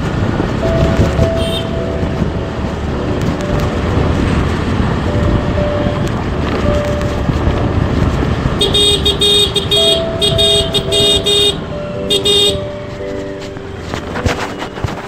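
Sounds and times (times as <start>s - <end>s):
street traffic noise: 0.0s - 15.0s
other horns: 1.1s - 1.9s, 8.6s - 13.2s
vehicle horn short blasts: 1.3s - 1.8s, 8.6s - 12.6s.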